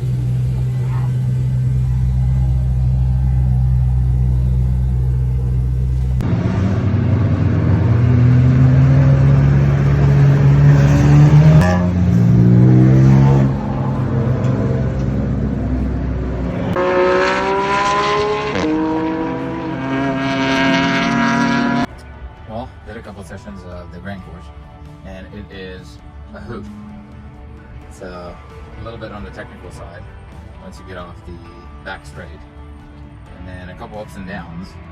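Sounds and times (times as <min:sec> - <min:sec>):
race car engine accelerating: 0:00.0 - 0:21.9.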